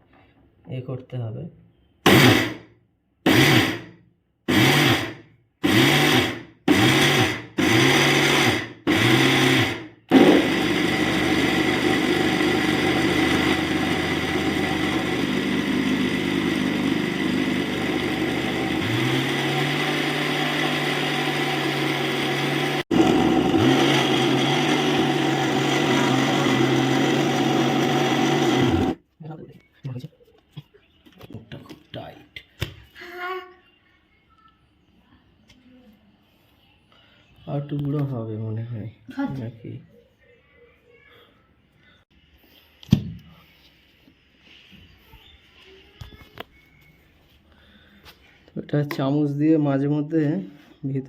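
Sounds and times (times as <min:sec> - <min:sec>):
mixer grinder grinding rice: 0:02.1 - 0:02.6, 0:03.3 - 0:03.8, 0:04.5 - 0:29.0.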